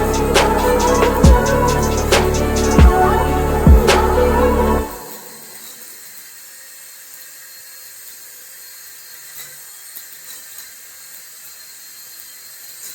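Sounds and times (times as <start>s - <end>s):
small electric motor whirring: 4.9s - 12.9s.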